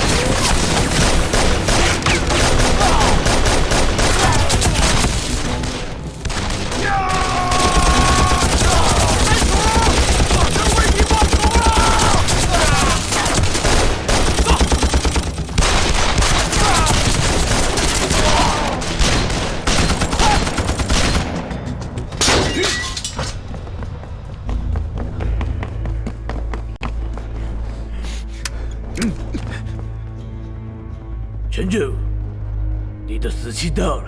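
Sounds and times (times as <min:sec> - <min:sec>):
rifle and machine-gun fire: 0:00.0 - 0:21.4
background music: 0:00.0 - 0:34.0
men shouting: 0:06.7 - 0:13.4.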